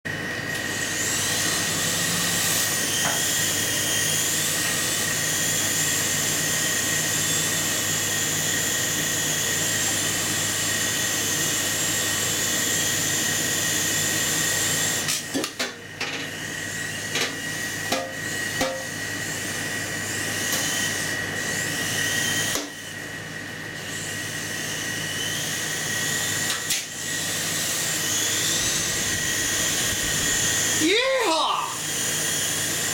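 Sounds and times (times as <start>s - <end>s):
small helicopter motor whining: 0.4s - 32.9s.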